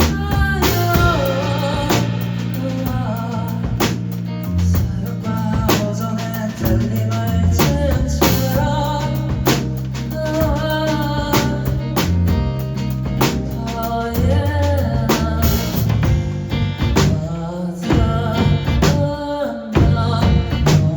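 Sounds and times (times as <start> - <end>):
person singing: 0.0 - 12.1, 13.4 - 15.9, 17.0 - 20.9
acoustic guitar: 0.0 - 20.9
bass line: 0.0 - 20.9
drum kit beating: 0.0 - 20.9.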